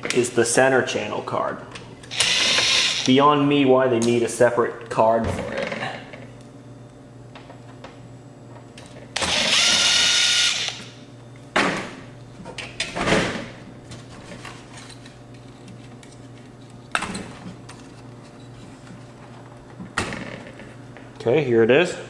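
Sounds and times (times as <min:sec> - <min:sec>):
power screwdriver whining: 0:02.1 - 0:03.1, 0:09.2 - 0:10.9.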